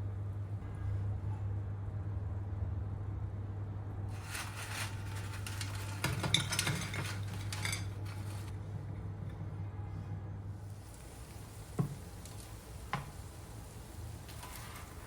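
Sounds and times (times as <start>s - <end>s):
metal utensil scraping dishes: 4.1s - 8.5s.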